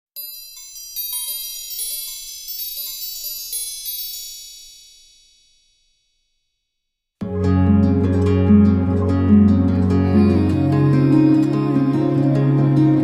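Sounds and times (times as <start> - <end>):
bright high chime notes: 0.2 - 6.2.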